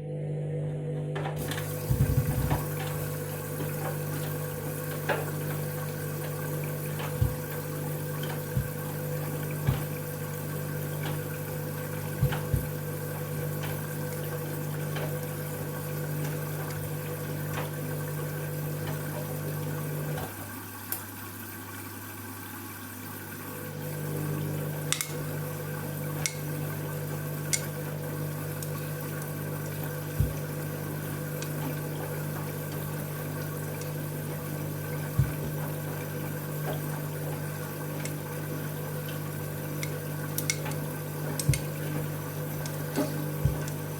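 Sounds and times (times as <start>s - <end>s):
washing machine hum: 0.0s - 43.9s
water running into washing machine: 1.2s - 43.9s.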